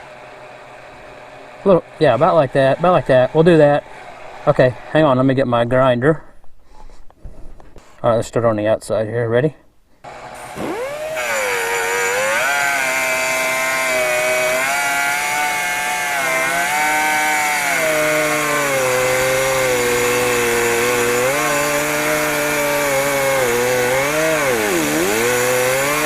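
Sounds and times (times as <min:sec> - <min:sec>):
die grinder sanding metal: 0:10.1 - 0:26.0.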